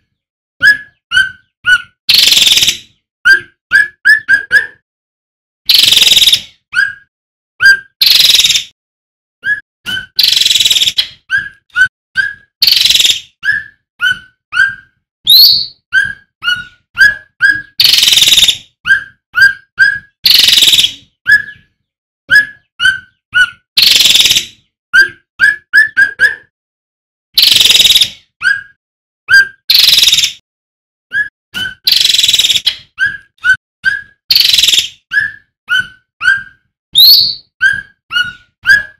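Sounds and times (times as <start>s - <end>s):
bird harsh rasping call: 0.9s - 3.4s, 5.7s - 7.0s, 12.2s - 21.6s, 22.4s - 25.1s, 29.3s - 30.4s, 31.6s - 33.2s, 33.9s - 38.9s
bird whistled notes: 9.4s - 21.7s, 29.3s - 30.4s, 31.1s - 38.9s.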